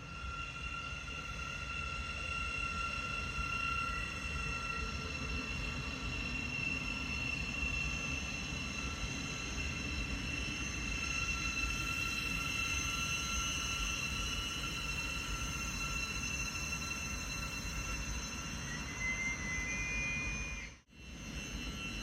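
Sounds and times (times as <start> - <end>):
high ringing tones: 0.0 - 22.0.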